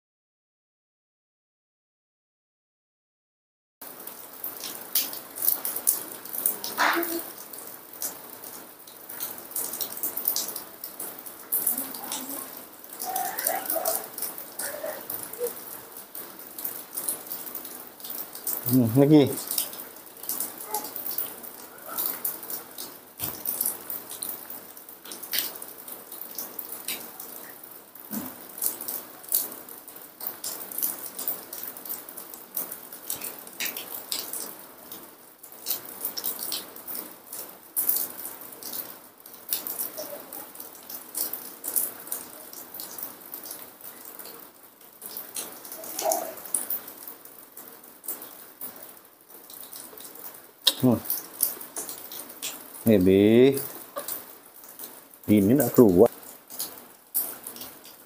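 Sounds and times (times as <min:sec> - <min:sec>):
heavy rain patter: 0:03.8 - 0:58.0.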